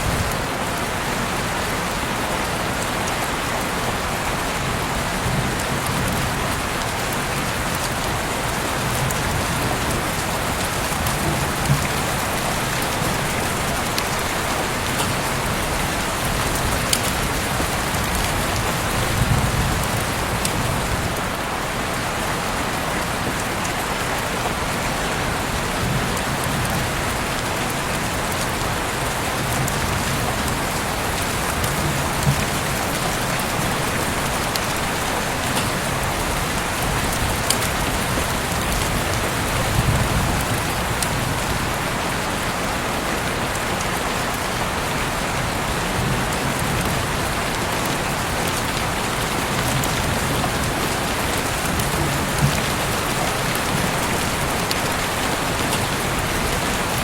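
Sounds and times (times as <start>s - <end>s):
heavy rain falling: 0.0s - 57.0s
rain drop ticks: 5.3s - 20.9s, 29.3s - 41.6s.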